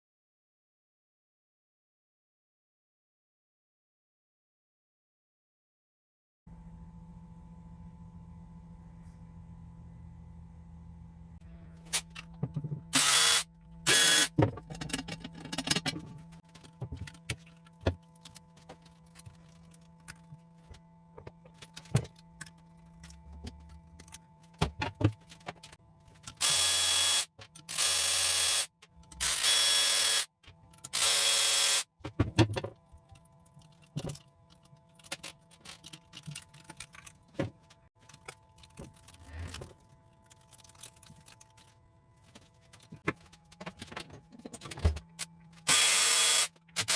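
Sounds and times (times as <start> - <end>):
metal tools clinking and knocking: 14.5 - 20.2.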